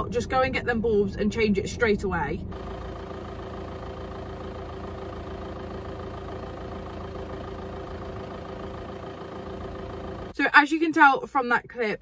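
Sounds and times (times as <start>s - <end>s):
diesel engine idling: 2.5s - 10.4s.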